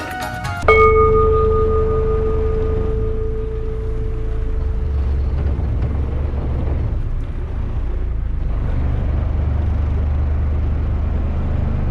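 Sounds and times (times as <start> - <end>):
boat engine droning: 0.6 - 9.1.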